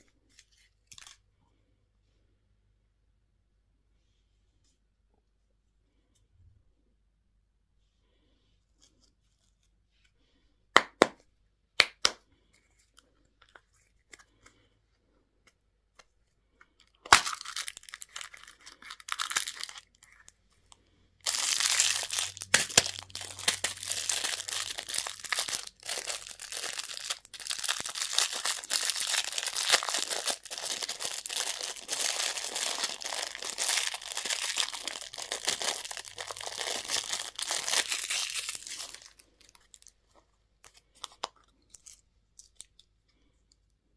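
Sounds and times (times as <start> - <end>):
candy wrappers tearing and crinkling: 0.4 - 1.2, 16.8 - 20.4, 21.2 - 40.0, 40.6 - 43.0.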